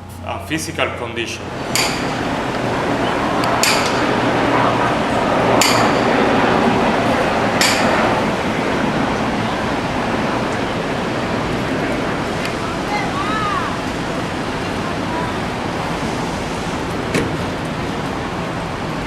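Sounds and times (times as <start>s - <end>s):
sharp metallic clinks: 1.7s - 2.3s.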